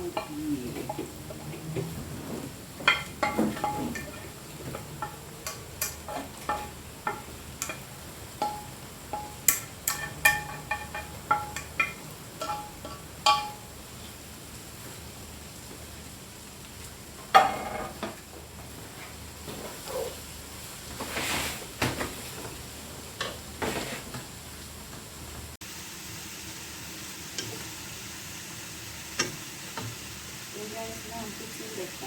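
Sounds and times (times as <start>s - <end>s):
vegetables sizzling in a pan: 0.0s - 32.0s
utensil scraping and knocking pan: 0.1s - 13.6s.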